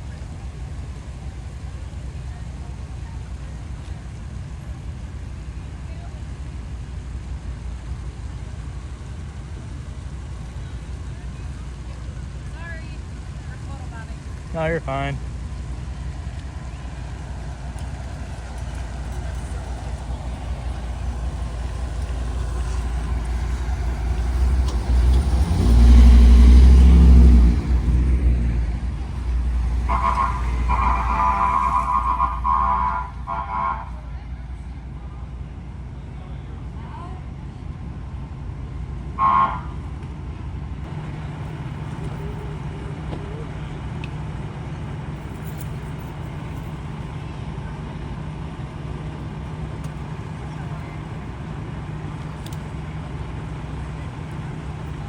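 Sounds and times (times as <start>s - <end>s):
large vehicle engine humming: 0.0s - 55.0s
large vehicle engine passing: 13.4s - 34.9s
steady high tone: 29.0s - 34.2s.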